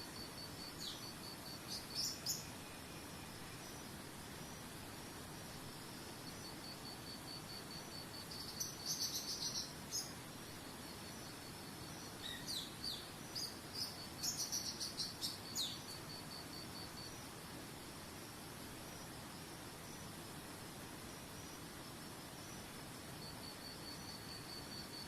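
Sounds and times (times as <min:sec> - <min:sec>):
songbirds chirping: 0:00.1 - 0:06.6, 0:08.1 - 0:16.3.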